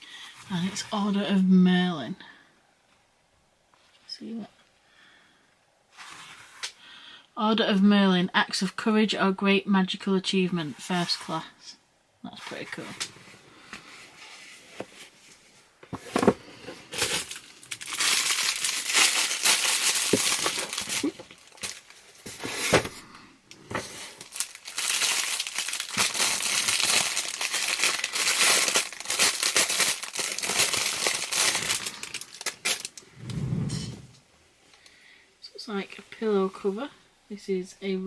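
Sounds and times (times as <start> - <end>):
packaging crinkling and rustling: 14.2 - 33.0
objects knocking as set down: 15.9 - 17.1.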